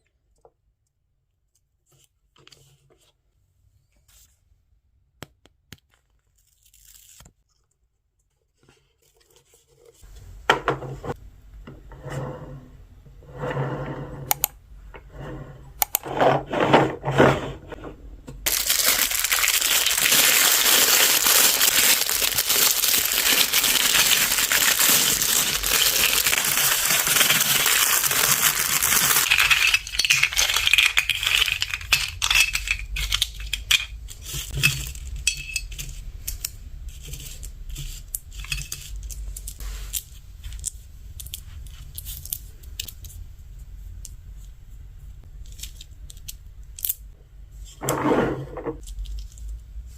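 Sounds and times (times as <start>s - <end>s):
plastic toy pieces clattering: 18.5s - 36.4s.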